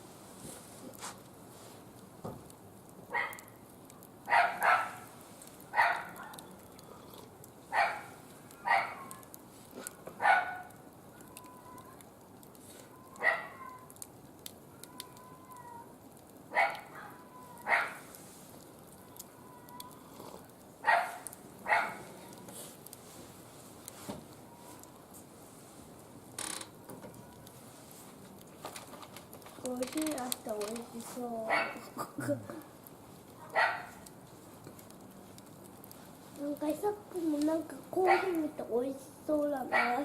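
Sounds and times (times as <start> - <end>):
dog barking: 3.1 - 3.4, 4.3 - 5.0, 5.8 - 6.4, 7.7 - 9.1, 10.2 - 10.7, 13.2 - 13.6, 16.5 - 18.0, 20.8 - 22.1, 31.5 - 31.8, 33.4 - 34.0, 38.1 - 38.4, 39.7 - 40.0.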